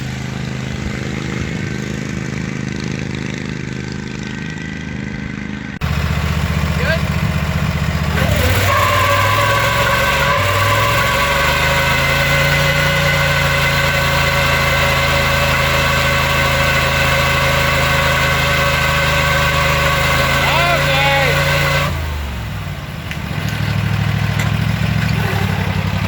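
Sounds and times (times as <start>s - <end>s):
engine idling: 0.0s - 26.0s
steady whine: 5.6s - 23.1s.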